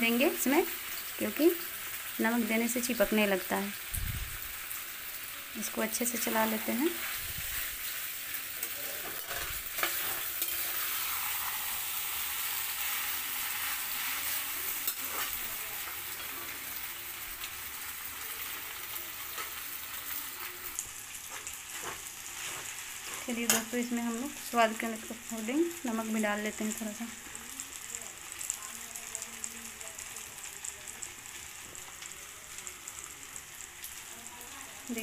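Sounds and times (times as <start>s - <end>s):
noodles sizzling in a pan: 0.0s - 35.0s
metal spatula scraping a pan: 6.2s - 16.8s, 21.2s - 23.8s.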